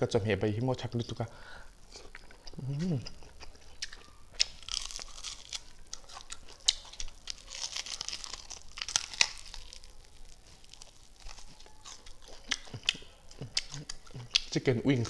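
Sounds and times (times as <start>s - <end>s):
chicken wing crunching and chewing: 1.8s - 15.0s
sharp cracks: 3.8s - 12.1s.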